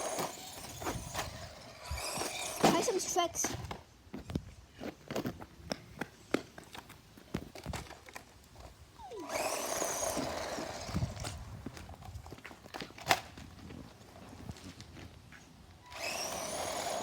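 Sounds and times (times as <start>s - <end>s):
electric motor whirring: 0.0s - 3.0s, 9.1s - 11.5s, 15.8s - 17.0s
toy car clattering on hard surface: 0.0s - 3.8s.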